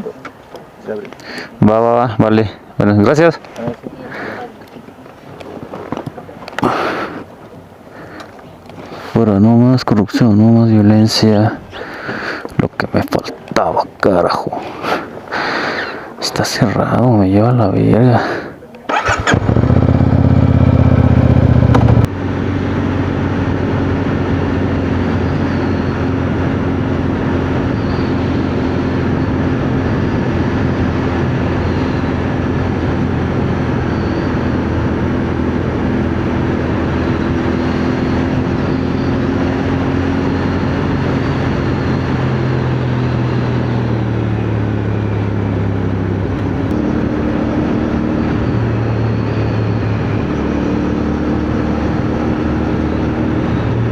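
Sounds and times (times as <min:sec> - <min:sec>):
motorcycle engine running: 0:18.9 - 0:53.9.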